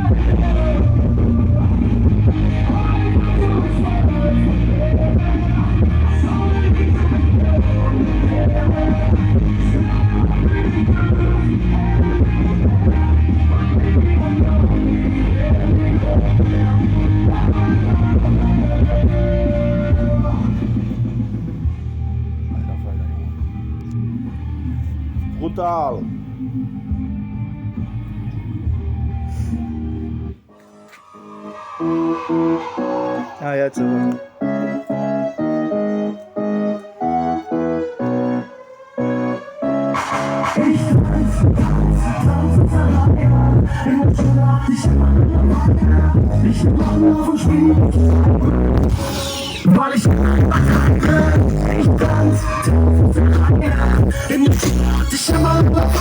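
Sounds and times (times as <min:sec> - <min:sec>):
loud rock music: 0:00.0 - 0:35.6, 0:39.0 - 0:56.0
keyboard chord stabs: 0:25.1 - 0:44.2.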